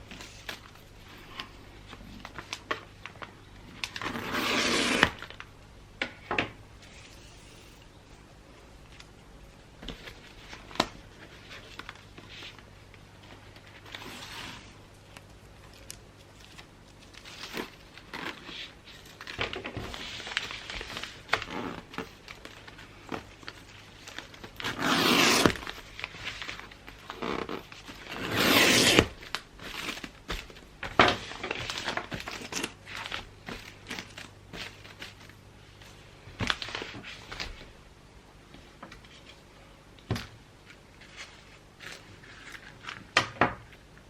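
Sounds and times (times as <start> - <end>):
paper ripping: 3.8 - 5.4, 24.6 - 25.8, 27.1 - 30.0
wrapping paper crinkling: 40.6 - 43.2.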